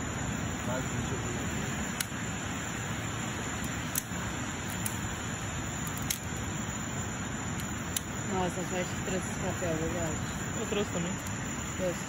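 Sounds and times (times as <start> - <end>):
sharp clicks: 3.6 - 5.0, 5.8 - 6.3, 7.6 - 8.1.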